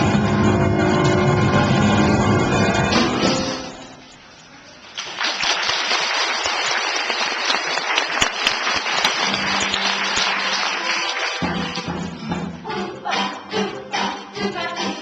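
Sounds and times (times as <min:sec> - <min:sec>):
audience clapping: 0:04.9 - 0:12.0.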